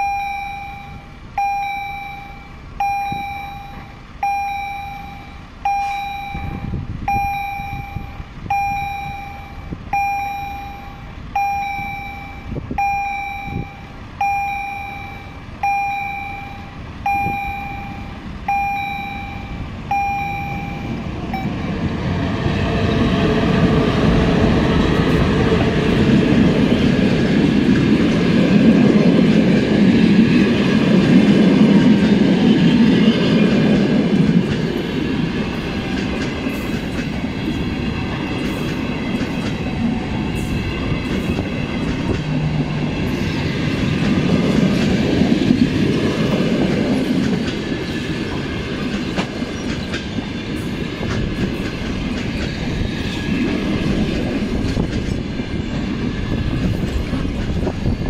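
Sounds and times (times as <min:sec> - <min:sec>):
train wheels rumbling on rail: 0:00.0 - 0:58.0
wheels clacking over rail joints: 0:21.8 - 0:58.0.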